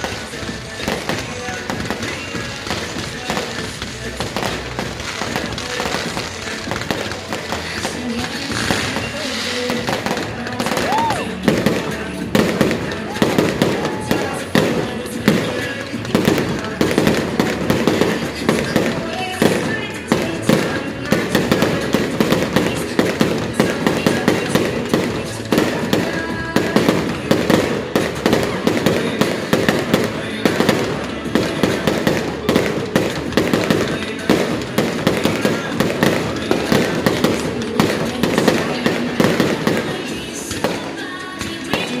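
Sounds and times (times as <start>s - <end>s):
fireworks bursting: 0.0s - 42.0s.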